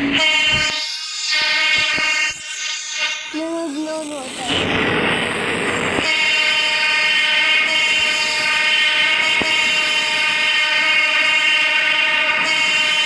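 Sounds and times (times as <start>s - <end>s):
train horn held: 0.0s - 3.4s, 6.0s - 13.0s
train wheels rushing on rails: 0.0s - 13.0s.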